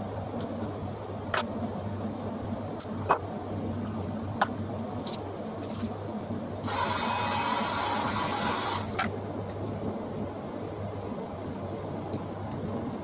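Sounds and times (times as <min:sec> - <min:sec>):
steady low hum: 0:00.0 - 0:13.0
small electric motor running: 0:06.6 - 0:09.0.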